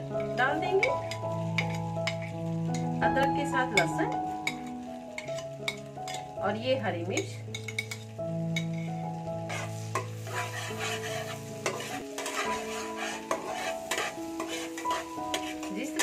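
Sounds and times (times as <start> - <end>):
background music with held notes: 0.0 - 16.0
food sizzling in hot oil: 0.0 - 16.0
spatula scraping metal pan: 9.5 - 16.0.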